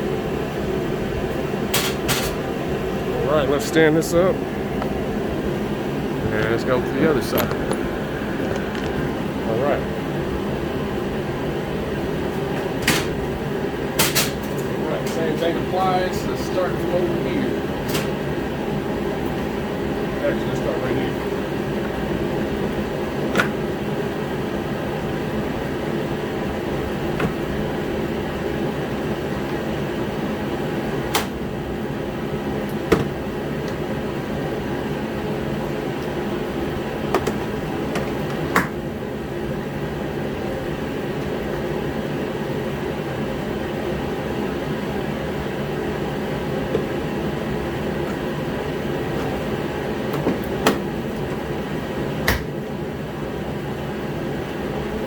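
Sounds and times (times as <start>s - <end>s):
heater humming: 0.0s - 55.0s.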